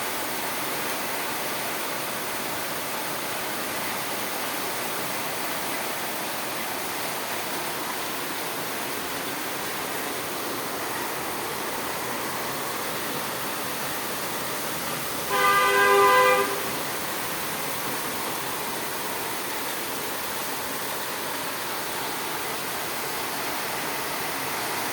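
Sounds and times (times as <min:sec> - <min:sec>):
heavy rain falling: 0:00.0 - 0:24.9
vehicle horn: 0:15.3 - 0:17.0.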